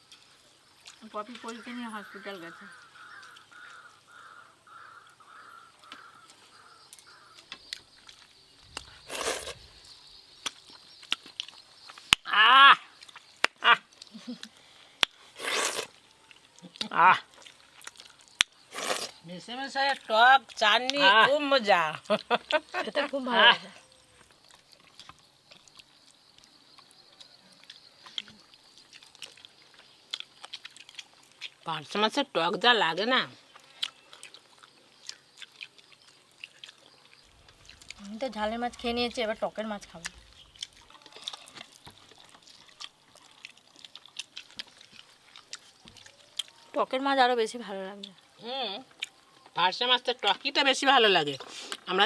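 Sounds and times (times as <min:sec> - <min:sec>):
chewing and lip-smacking: 0:10.4 - 0:12.2, 0:13.0 - 0:19.2, 0:24.2 - 0:31.6, 0:33.4 - 0:38.9, 0:39.8 - 0:46.8, 0:48.0 - 0:49.6.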